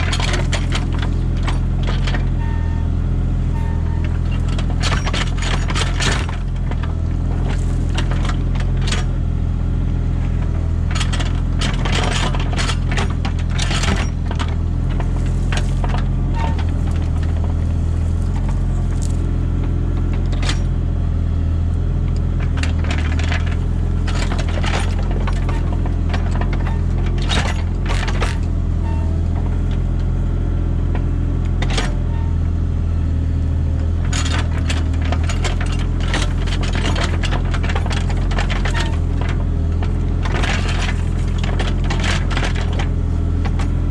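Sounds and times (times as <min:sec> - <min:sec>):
excavator diesel engine running: 0:00.0 - 0:43.9
bucket clanking and scraping: 0:10.9 - 0:20.7, 0:22.4 - 0:28.4.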